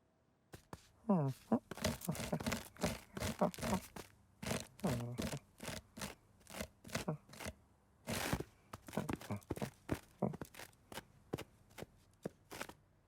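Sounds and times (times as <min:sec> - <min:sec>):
cartoon crunching and tearing: 0:01.7 - 0:07.5.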